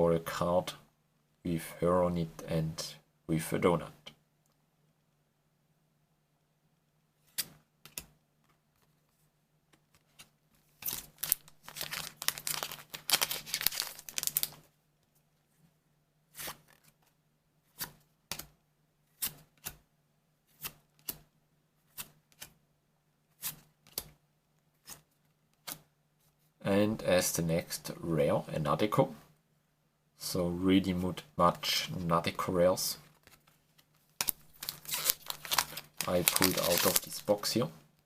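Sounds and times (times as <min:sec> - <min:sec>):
foil wrapper tearing and crinkling: 0:10.8 - 0:14.6, 0:34.2 - 0:37.3.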